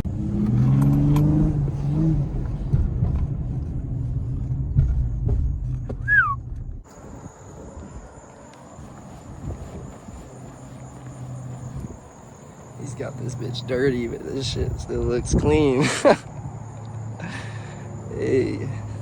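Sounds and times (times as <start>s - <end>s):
car engine and road rumble: 0.0s - 19.0s
short falling chirp: 6.0s - 6.5s.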